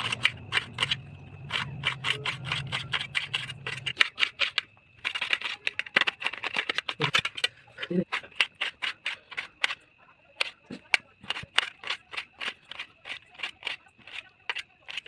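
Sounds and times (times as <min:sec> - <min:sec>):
low hum: 0:00.0 - 0:04.0
knife cutting strokes: 0:00.0 - 0:05.7, 0:08.1 - 0:09.8, 0:10.4 - 0:15.0.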